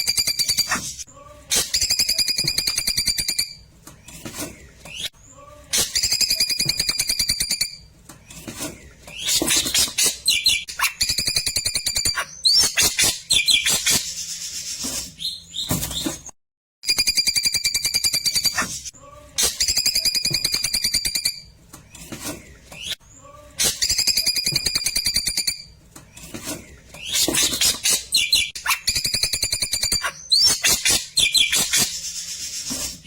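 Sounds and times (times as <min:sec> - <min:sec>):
bird chirps: 0:09.1 - 0:16.2, 0:27.0 - 0:32.5.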